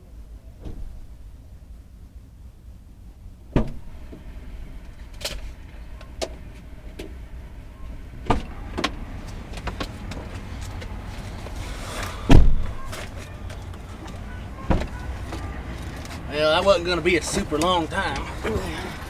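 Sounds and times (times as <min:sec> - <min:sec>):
car interior rumble: 0:00.0 - 0:19.0.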